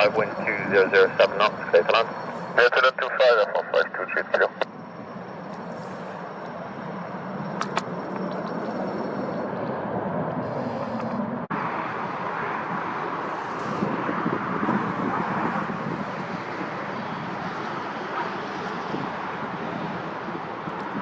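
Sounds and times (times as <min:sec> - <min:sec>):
jet airliner engine noise: 0:00.0 - 0:21.0
wind on microphone: 0:05.6 - 0:21.0.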